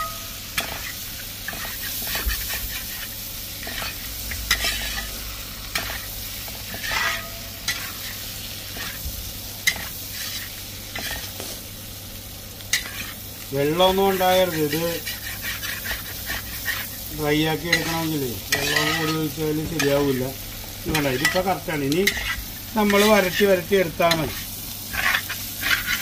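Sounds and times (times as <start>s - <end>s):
meat sizzling in fat: 0.0s - 26.0s
spoon scraping and knocking pan: 6.7s - 7.9s, 17.6s - 20.0s, 20.9s - 23.5s, 24.1s - 26.0s.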